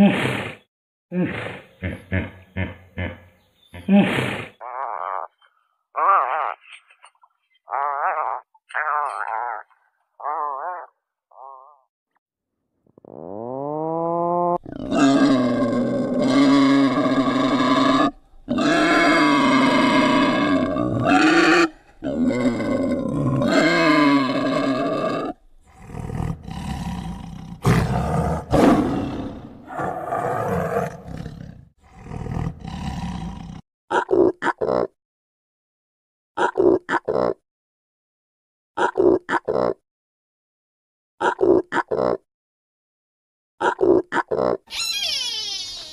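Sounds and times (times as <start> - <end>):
loud animal calls: 14.9 - 25.2, 44.7 - 45.9.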